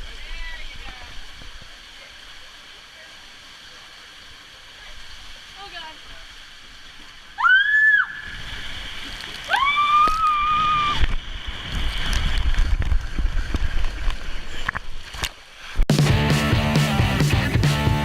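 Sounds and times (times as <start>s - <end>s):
water rushing and sloshing: 0.0s - 15.9s
music: 15.9s - 18.0s.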